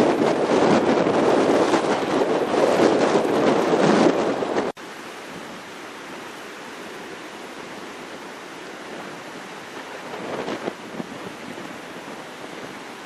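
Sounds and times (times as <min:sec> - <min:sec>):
strong wind buffeting microphone: 0:00.0 - 0:06.3, 0:07.6 - 0:13.0
ocean surf rushing: 0:00.0 - 0:13.0.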